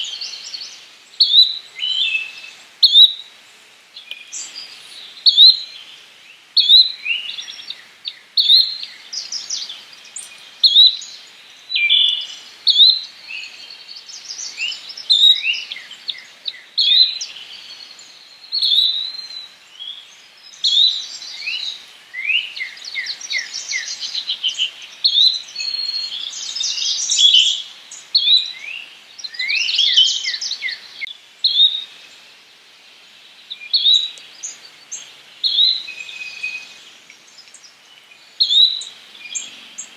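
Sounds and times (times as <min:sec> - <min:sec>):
songbirds: 0:00.0 - 0:39.9
flycatcher chirping: 0:06.6 - 0:32.2.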